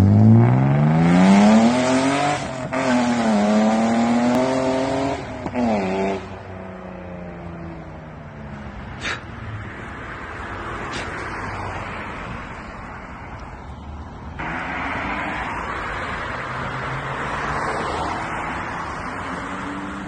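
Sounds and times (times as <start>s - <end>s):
car exhaust under hard acceleration: 0.0s - 7.0s.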